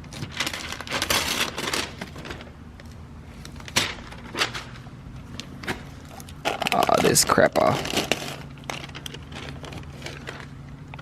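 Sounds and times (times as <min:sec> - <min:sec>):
covering tearing: 0:00.1 - 0:02.5, 0:06.2 - 0:10.5.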